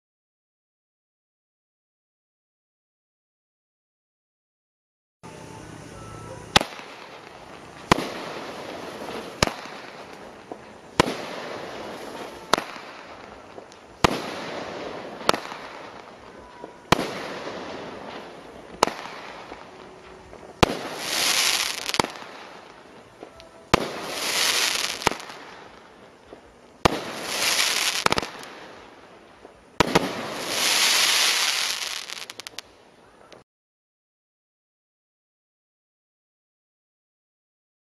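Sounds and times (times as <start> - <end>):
firework hiss and crackle: 5.3 - 33.4.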